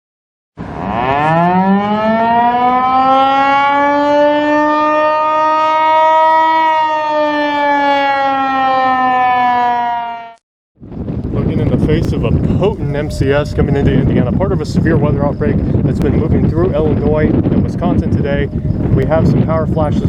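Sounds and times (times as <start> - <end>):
warning siren wailing: 0.6 - 10.4.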